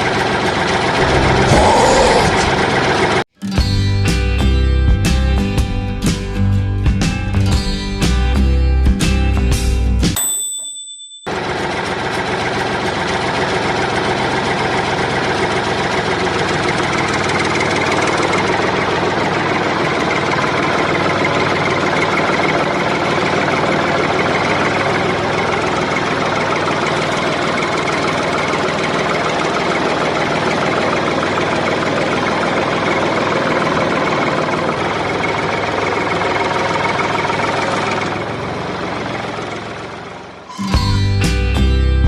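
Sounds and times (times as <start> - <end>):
mini tractor engine running: 11.3 - 40.5.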